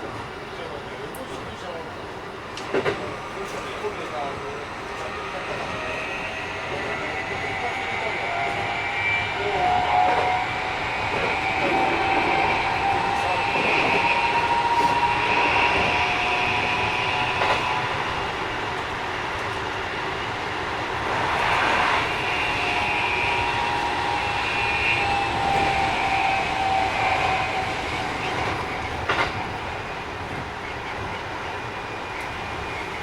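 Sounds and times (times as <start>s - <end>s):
wheel and track rumble: 0.0s - 33.0s
rail joint clacks: 2.5s - 4.3s, 9.9s - 19.8s, 20.7s - 33.0s
electric train motor whine: 5.2s - 30.1s.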